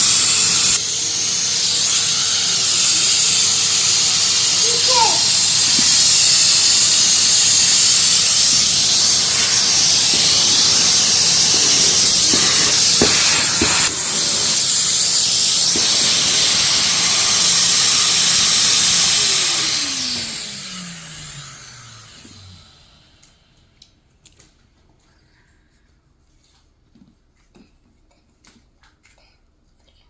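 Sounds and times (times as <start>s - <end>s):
motor whine winding down: 0.0s - 23.4s
vacuum cleaner running: 0.0s - 23.7s.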